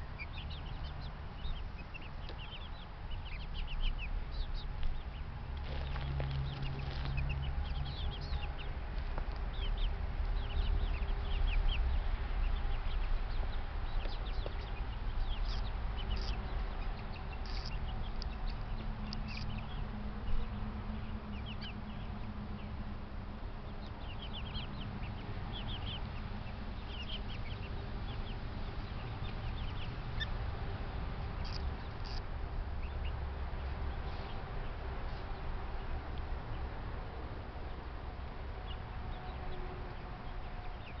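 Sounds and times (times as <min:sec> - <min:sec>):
chickens clucking: 0:12.8 - 0:20.4.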